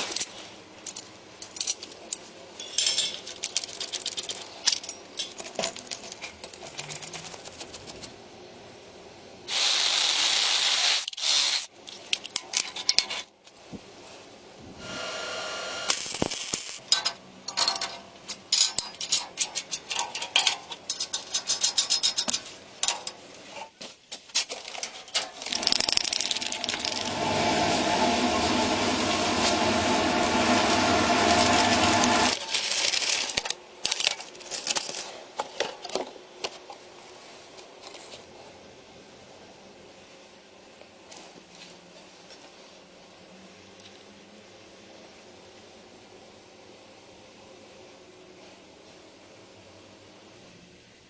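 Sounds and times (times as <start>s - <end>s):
clicks and rattles of tools: 0.0s - 8.0s, 11.1s - 13.6s, 15.9s - 27.1s, 32.3s - 36.9s
loud hiss bursts: 9.5s - 11.7s, 14.8s - 16.9s, 25.6s - 32.4s.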